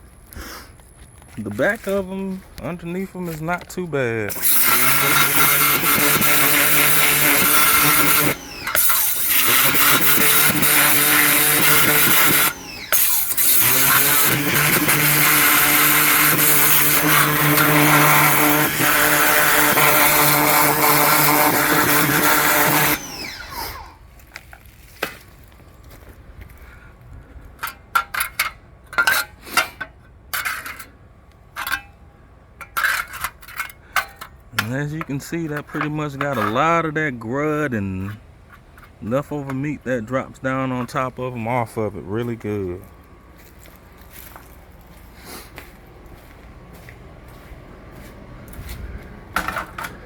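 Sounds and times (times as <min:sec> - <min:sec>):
pressure washer spraying water: 0:04.3 - 0:23.3.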